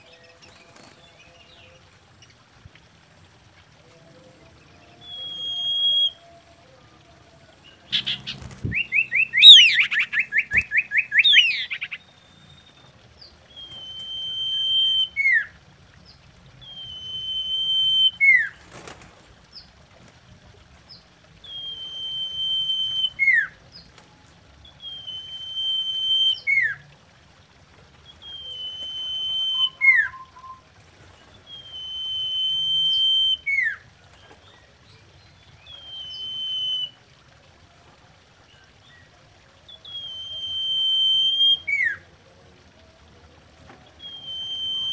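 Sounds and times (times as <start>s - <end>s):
bird long drawn-out whistles: 5.0s - 6.2s, 7.9s - 12.0s, 13.6s - 15.5s, 16.6s - 18.5s, 21.4s - 23.5s, 24.8s - 26.8s, 28.2s - 30.7s, 31.5s - 33.8s, 35.7s - 37.0s, 39.8s - 42.0s, 44.0s - 44.9s
bird trill of chattering notes: 7.8s - 12.8s.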